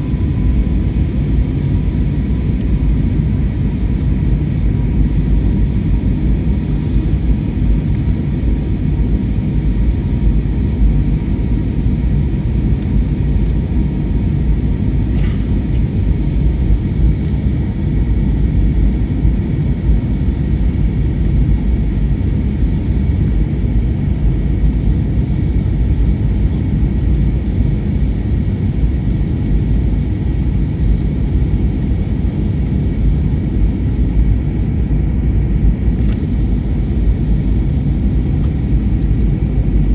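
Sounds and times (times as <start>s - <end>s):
faint whining tones: 0.0s - 4.2s
airliner cabin rumble: 0.0s - 39.9s.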